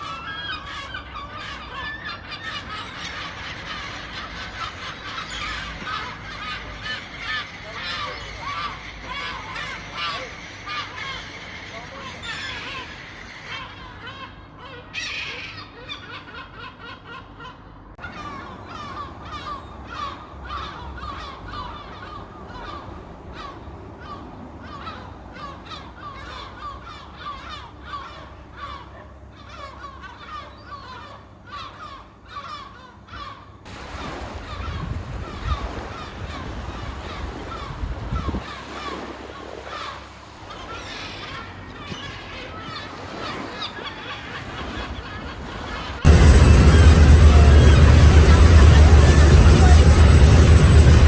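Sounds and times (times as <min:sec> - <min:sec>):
seagulls squawking: 0:00.0 - 0:51.0
low rumble: 0:46.1 - 0:51.0.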